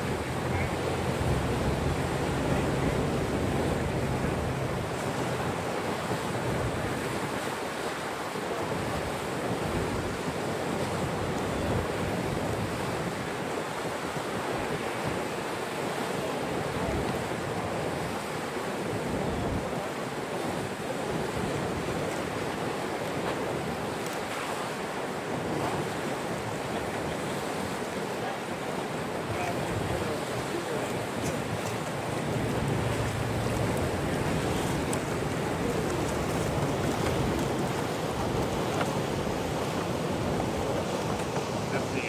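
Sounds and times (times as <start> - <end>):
wind buffeting microphone: 0.0 - 7.5, 29.2 - 41.8
rushing water: 0.0 - 42.0.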